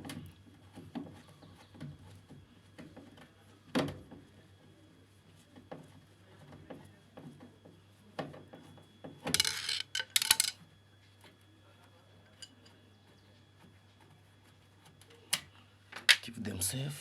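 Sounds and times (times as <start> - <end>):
metal screws and tools clinking: 9.4 - 10.6.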